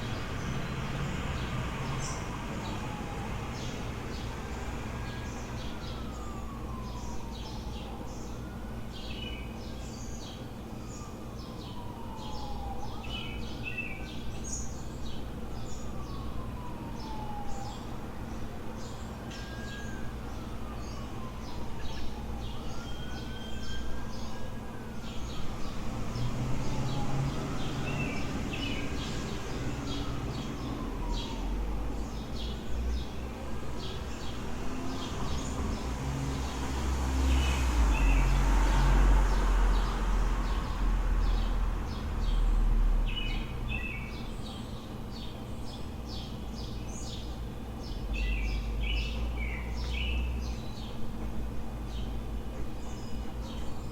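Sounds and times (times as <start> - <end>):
vehicle passing: 0.0 - 6.8, 25.5 - 32.5, 33.9 - 43.9
faint siren wailing: 0.0 - 46.5, 47.3 - 53.8
low traffic rumble: 0.0 - 53.9
birds chirping: 37.3 - 51.2.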